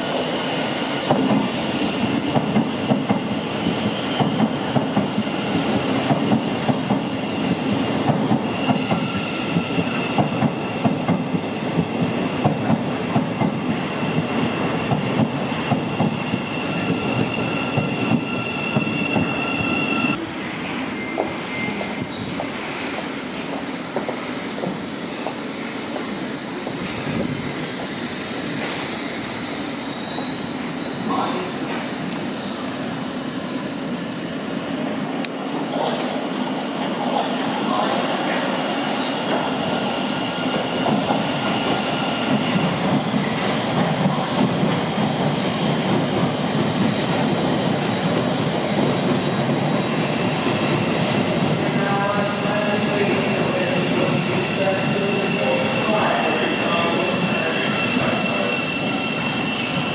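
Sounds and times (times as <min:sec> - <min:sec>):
rumble of train wheels on rail: 0:01.1 - 0:20.2, 0:21.2 - 0:29.4, 0:34.1 - 0:38.5, 0:39.1 - 0:59.9
faint high wheel squeal: 0:30.0 - 0:31.1, 0:55.1 - 0:59.9.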